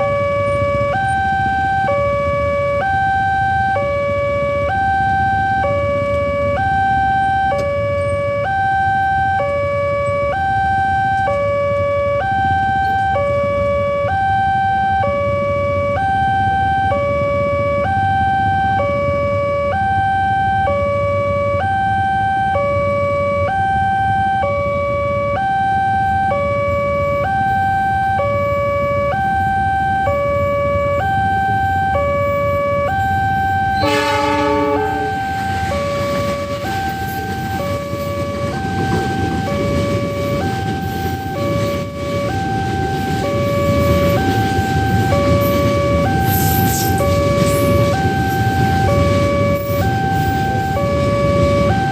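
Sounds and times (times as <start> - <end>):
level crossing alarm tones: 0.0 - 51.9
horn blast: 33.8 - 35.6.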